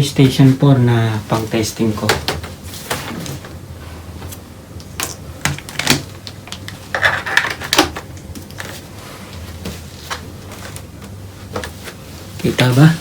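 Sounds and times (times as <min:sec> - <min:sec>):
objects clattering on a workbench: 0:06.9 - 0:08.8.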